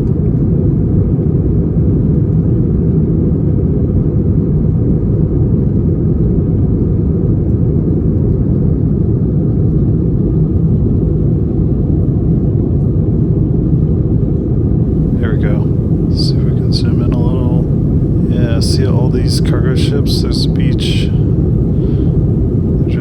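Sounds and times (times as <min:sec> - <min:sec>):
airplane cabin engine rumble: 0:14.9 - 0:23.0.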